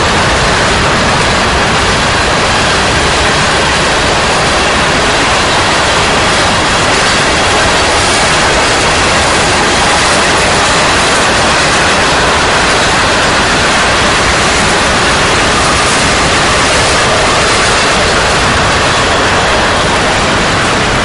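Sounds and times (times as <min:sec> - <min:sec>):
freight train rolling past: 0:00.0 - 0:21.0.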